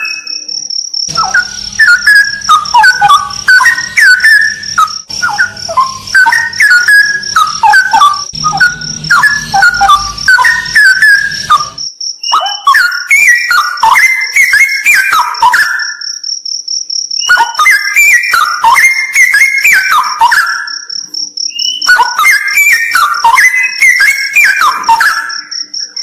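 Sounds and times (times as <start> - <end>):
bird singing whistled phrases: 0.0 - 0.4, 1.1 - 16.1, 17.2 - 20.9, 21.5 - 26.0
high pulsing trill: 1.1 - 11.9.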